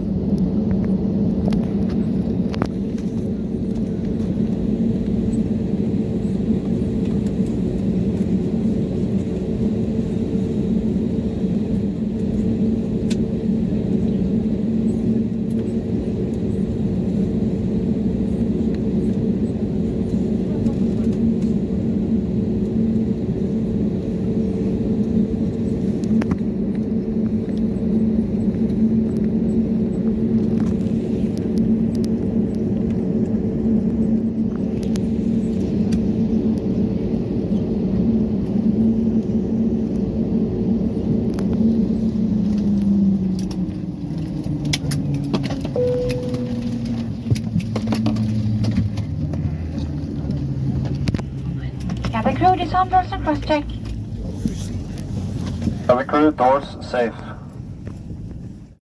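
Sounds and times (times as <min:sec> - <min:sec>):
aircraft engines running down: 0:00.0 - 0:58.8
airplane cabin drone: 0:00.0 - 0:58.8
soft chime: 0:45.8 - 0:47.0.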